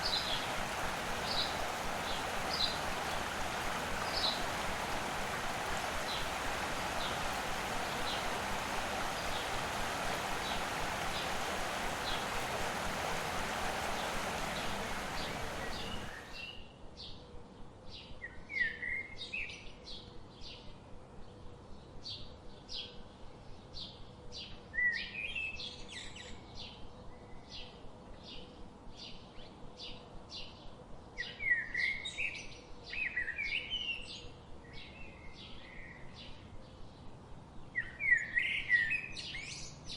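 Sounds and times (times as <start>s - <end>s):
steady rushing noise: 0.0s - 16.4s
twittering bird calls: 0.0s - 16.5s
songbirds chirping: 0.0s - 16.6s.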